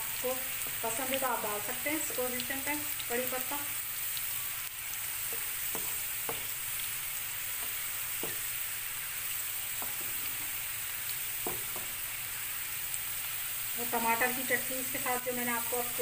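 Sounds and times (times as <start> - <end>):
onions sizzling in hot oil: 0.0 - 16.0
wooden spatula knocking on pan: 5.3 - 6.6, 7.5 - 8.5, 9.8 - 10.2, 11.4 - 12.0.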